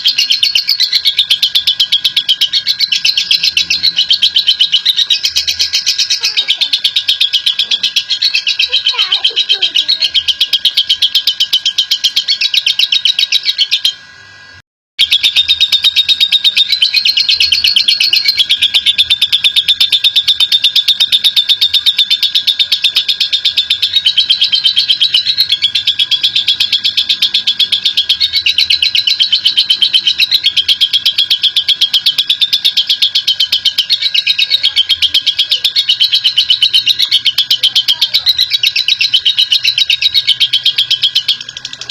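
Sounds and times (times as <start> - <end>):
lovebird chattering trill: 0.0 - 14.1, 15.0 - 41.9.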